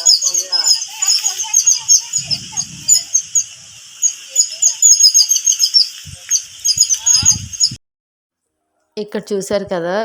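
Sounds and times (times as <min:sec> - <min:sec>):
small birds chirping: 0:00.0 - 0:07.8
steady hiss: 0:00.0 - 0:07.8.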